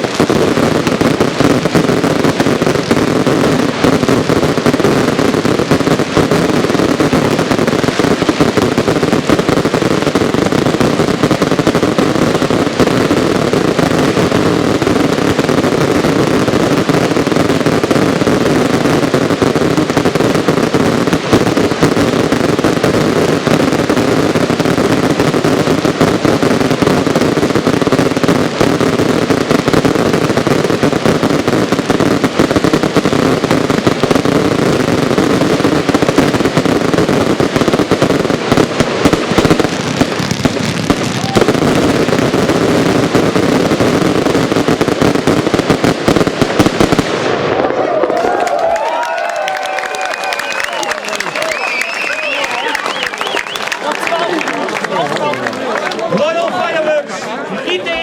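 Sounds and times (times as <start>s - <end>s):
fireworks barrage of bangs and crackling: 0.0s - 58.0s.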